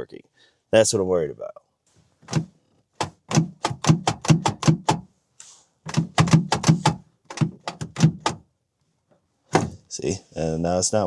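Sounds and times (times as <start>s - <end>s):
car door handle clacking: 2.2s - 5.1s, 5.9s - 8.4s, 9.5s - 9.8s.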